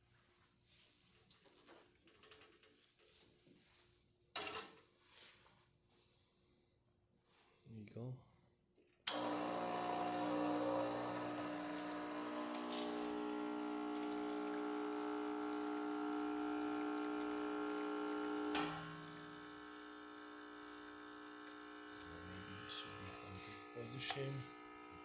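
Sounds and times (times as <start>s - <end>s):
espresso machine pump humming: 9.1s - 25.0s.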